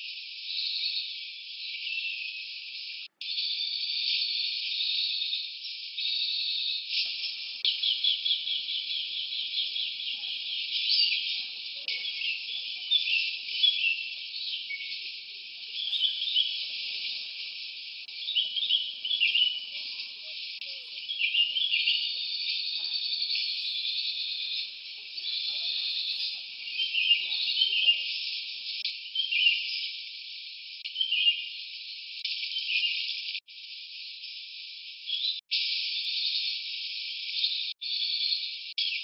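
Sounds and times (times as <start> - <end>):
birds chirping: 0.0 - 33.4
high insect hiss: 7.0 - 27.4.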